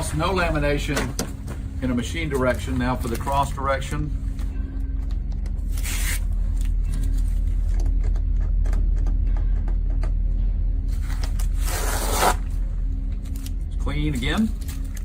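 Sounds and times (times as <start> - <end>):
steady low hum: 0.0 - 15.0
tape tearing: 5.7 - 6.8, 11.1 - 12.6.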